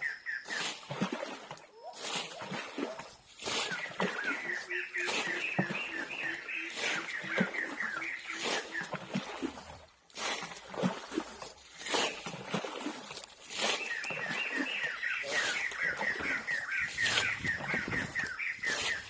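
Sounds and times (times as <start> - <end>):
sharp knocks or splashes: 0.4 - 19.0.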